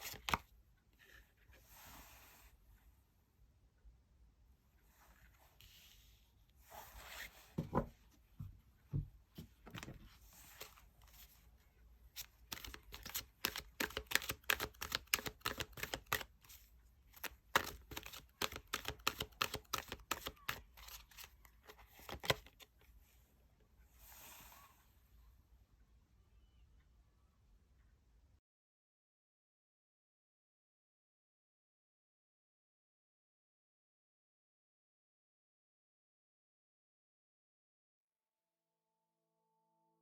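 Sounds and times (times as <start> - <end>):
cards rustling: 0.0 - 0.4, 12.2 - 22.7
cards shuffling with crisp clicks: 0.0 - 0.4, 12.2 - 22.7.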